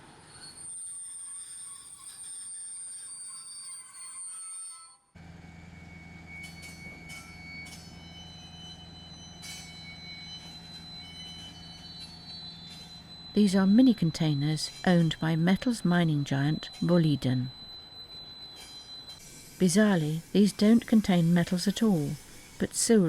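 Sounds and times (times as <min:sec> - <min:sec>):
low locomotive hum: 0:05.2 - 0:22.8
thin high-pitched tones: 0:09.4 - 0:23.0.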